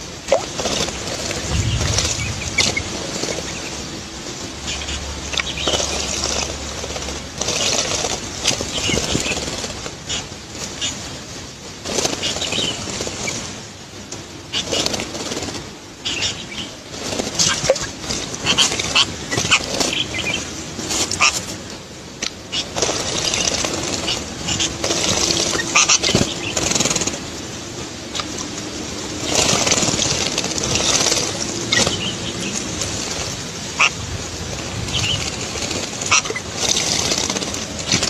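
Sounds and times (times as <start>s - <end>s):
water splashing: 0.0s - 6.7s, 22.5s - 38.0s
wings flapping: 0.2s - 11.1s, 11.8s - 38.0s.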